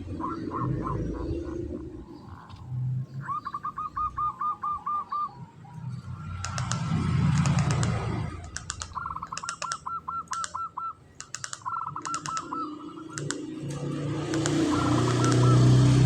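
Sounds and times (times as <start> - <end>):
dove cooing: 0.0 - 6.0, 7.6 - 16.0
sharp clicks: 6.2 - 16.0.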